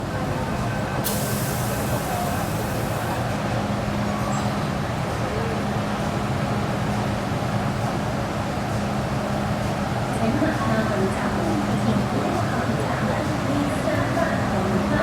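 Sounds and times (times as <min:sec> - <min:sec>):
electric train hum and rumble: 0:00.0 - 0:15.0
hiss of released air: 0:01.0 - 0:03.2.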